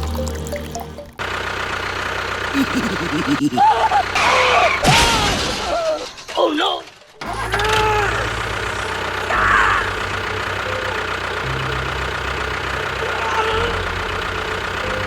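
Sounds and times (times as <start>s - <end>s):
engine idling: 0.0s - 15.0s
high-pitched voice-like cries: 2.6s - 6.1s.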